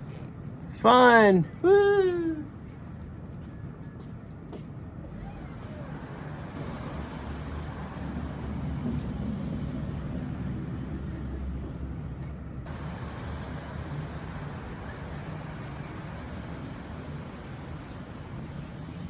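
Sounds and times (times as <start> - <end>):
heavy rain: 5.1 - 12.1, 12.7 - 19.0.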